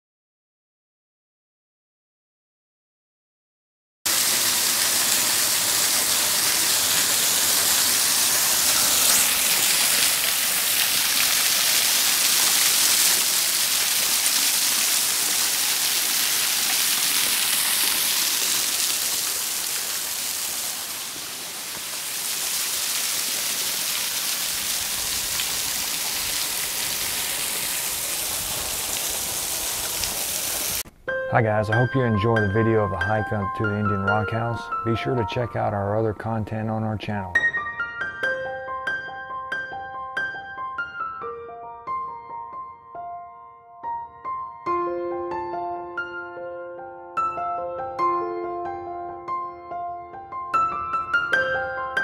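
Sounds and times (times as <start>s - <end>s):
waterfall splashing onto rocks: 4.1s - 30.8s.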